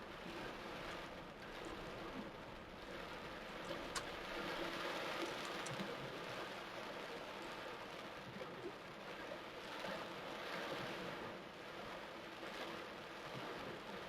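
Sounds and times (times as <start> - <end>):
heavy rain pouring: 0.0 - 8.0.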